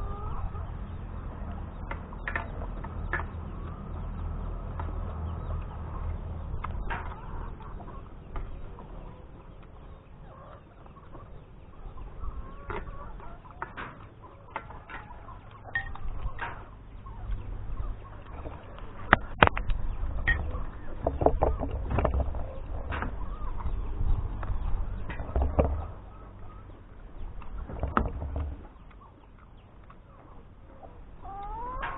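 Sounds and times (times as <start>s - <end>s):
low rumble: 0.0s - 13.5s, 14.7s - 31.9s
sharp clicks and knocks: 1.7s - 3.8s, 6.5s - 8.9s, 13.5s - 17.5s, 18.2s - 26.0s, 27.3s - 29.0s.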